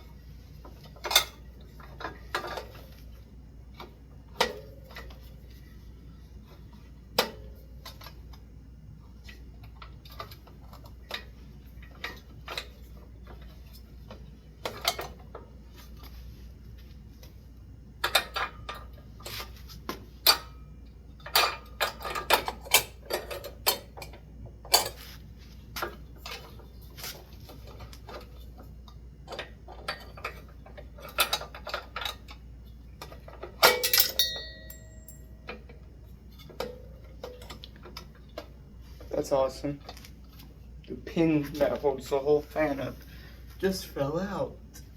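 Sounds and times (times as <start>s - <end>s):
metal pin falling with ring: 33.6s - 35.7s.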